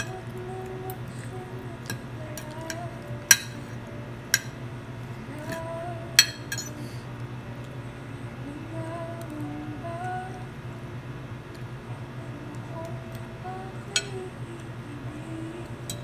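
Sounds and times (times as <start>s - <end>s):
soft background music: 0.0s - 16.0s
cutlery clinking against plate: 1.9s - 4.6s, 5.4s - 7.0s.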